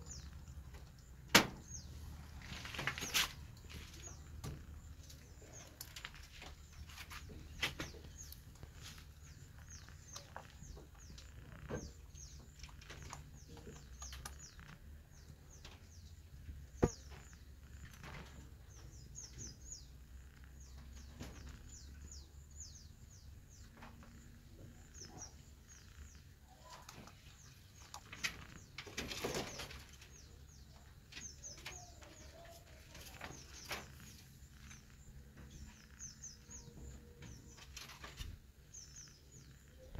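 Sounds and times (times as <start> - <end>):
small birds chirping: 0.0 - 39.9
rustling: 2.2 - 12.0.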